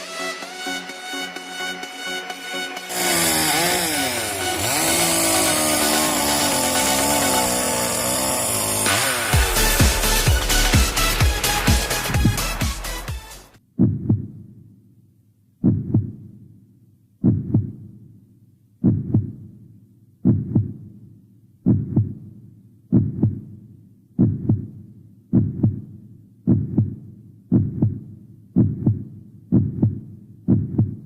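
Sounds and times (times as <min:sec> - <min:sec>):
heartbeat thumps: 0:09.8 - 0:12.8, 0:13.8 - 0:14.4, 0:15.6 - 0:16.2, 0:17.2 - 0:17.9, 0:18.8 - 0:19.4, 0:20.2 - 0:20.8, 0:21.6 - 0:22.3, 0:22.9 - 0:23.5, 0:24.2 - 0:31.0.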